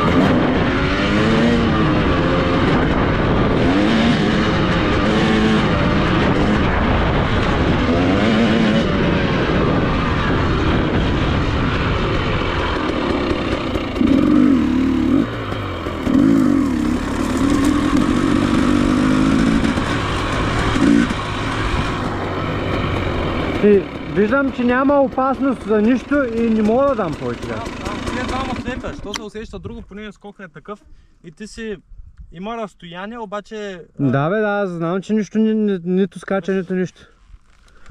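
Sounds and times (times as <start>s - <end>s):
dirt bike engine revving: 0.0s - 29.1s.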